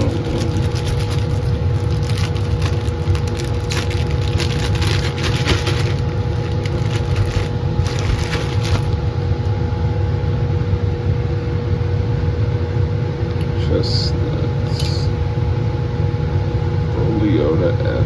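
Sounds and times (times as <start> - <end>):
crackling rustles: 0.0 - 9.6
flow hood blower roaring: 0.0 - 18.0.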